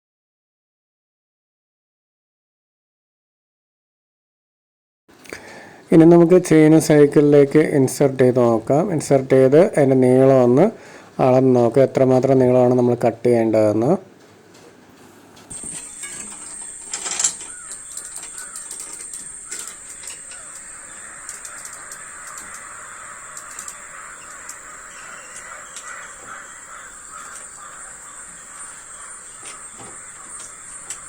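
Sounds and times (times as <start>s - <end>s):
bicycle chain clicking: 15.5s - 22.7s, 23.3s - 23.8s
high-pitched whine: 15.5s - 26.5s.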